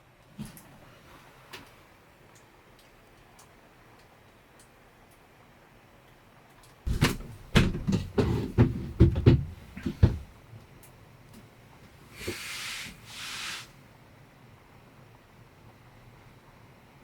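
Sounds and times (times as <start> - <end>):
knocks and thuds of gear handled: 6.9 - 10.3
short hissing swishes: 12.1 - 13.8.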